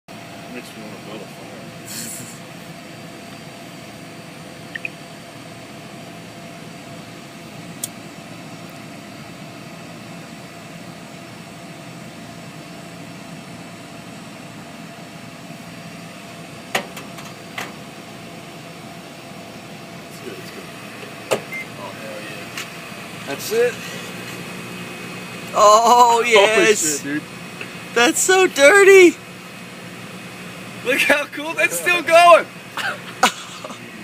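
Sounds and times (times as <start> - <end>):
microwave oven humming: 0.1 - 34.0
sharp clicks or pops: 4.7 - 5.0.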